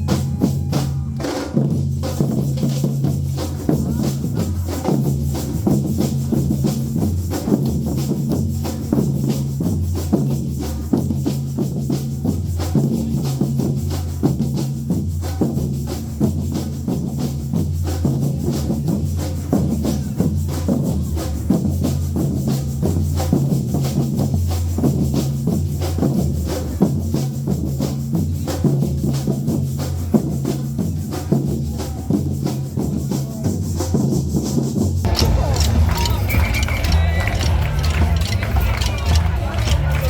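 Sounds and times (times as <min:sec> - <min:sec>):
drum kit beat: 0:29.2 - 0:40.0
bass line: 0:35.1 - 0:40.0.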